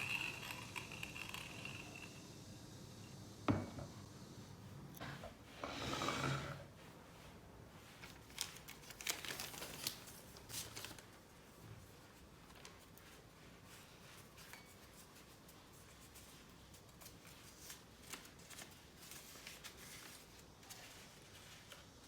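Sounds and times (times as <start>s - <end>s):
paper crinkling and rustling: 7.8s - 22.0s.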